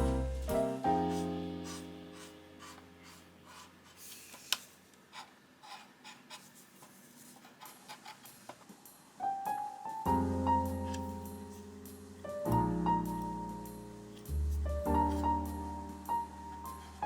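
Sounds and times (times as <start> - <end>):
piano chord: 0.0 - 2.6, 9.3 - 17.0
scratching on plastic parts: 2.7 - 8.7.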